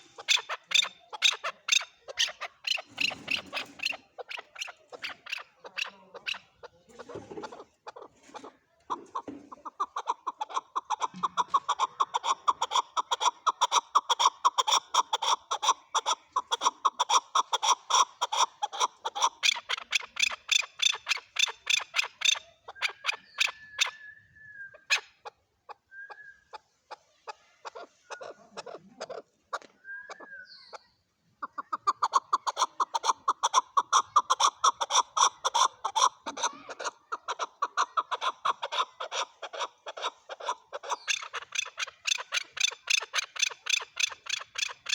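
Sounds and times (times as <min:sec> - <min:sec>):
partridge calling: 0:00.0 - 0:08.5, 0:09.1 - 0:24.0, 0:27.7 - 0:44.9.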